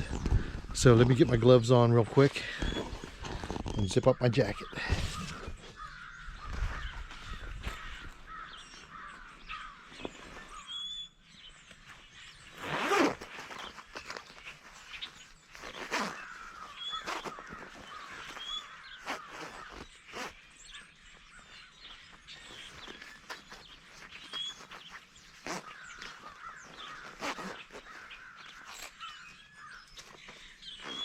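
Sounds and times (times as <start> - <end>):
small birds chirping: 0.0 - 31.0
crows cawing: 4.7 - 10.7, 15.8 - 19.9, 25.4 - 29.9.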